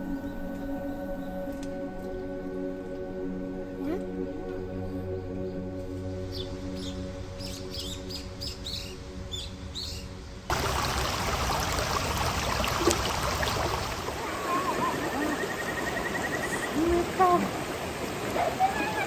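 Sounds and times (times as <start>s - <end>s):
soft background music: 0.0s - 12.3s
birds chirping: 6.2s - 19.0s
rushing water: 10.5s - 19.0s.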